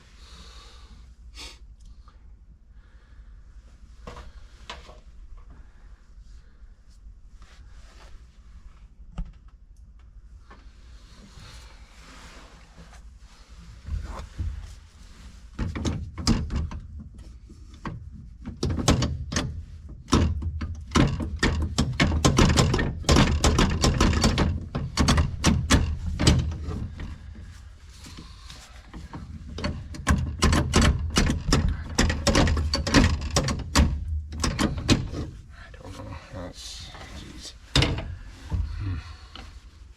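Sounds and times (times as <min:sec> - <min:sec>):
hand tools and metal parts clattering: 0:15.6 - 0:35.4.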